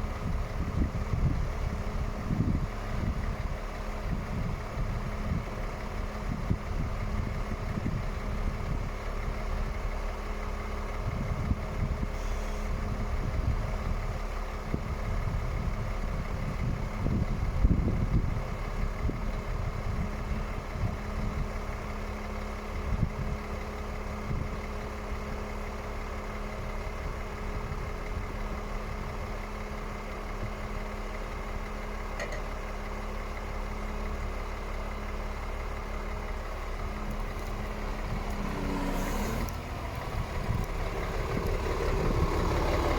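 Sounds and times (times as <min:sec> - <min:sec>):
diesel truck engine idling: 0:00.0 - 0:42.9
wind gusts: 0:36.9 - 0:42.9.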